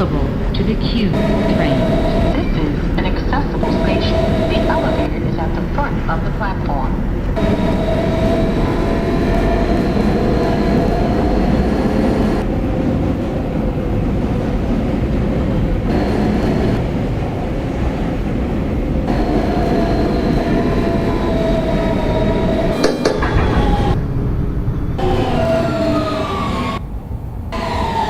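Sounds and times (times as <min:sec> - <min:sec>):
subway car noise: 0:00.0 - 0:28.0
high electrical whine: 0:01.1 - 0:05.2, 0:07.4 - 0:12.6, 0:15.8 - 0:17.1, 0:19.1 - 0:26.8.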